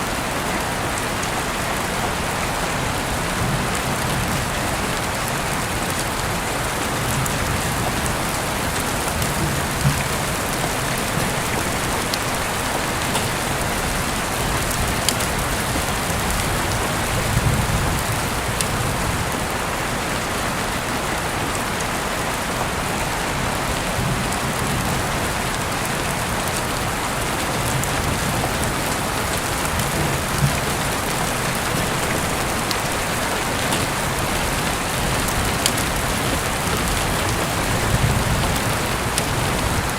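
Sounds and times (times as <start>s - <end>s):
rain falling: 0.0s - 39.9s
raindrop clicks: 7.1s - 18.8s, 27.6s - 39.9s.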